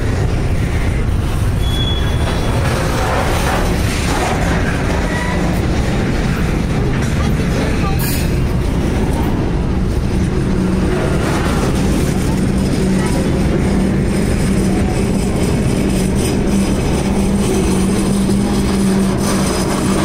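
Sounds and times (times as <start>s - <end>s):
freight train wheels rumbling on rail: 0.0s - 20.0s.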